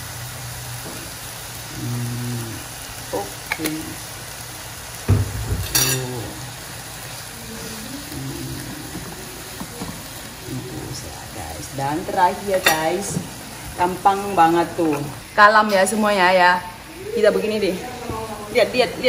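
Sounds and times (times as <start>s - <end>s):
meat sizzling in a frying pan: 0.0s - 19.0s.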